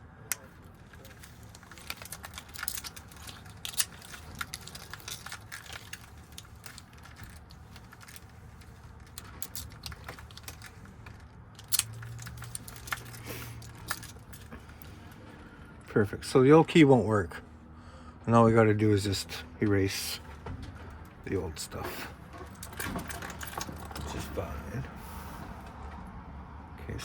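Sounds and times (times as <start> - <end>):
metallic clicks and rattles: 0.3 - 15.0, 20.6 - 24.5.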